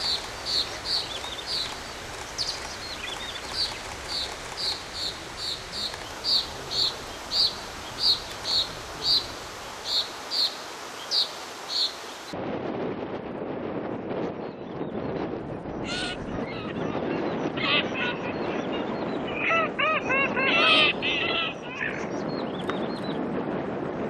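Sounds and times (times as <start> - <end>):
background hiss: 0.0 - 12.4
soft curling bird notes: 0.0 - 12.4.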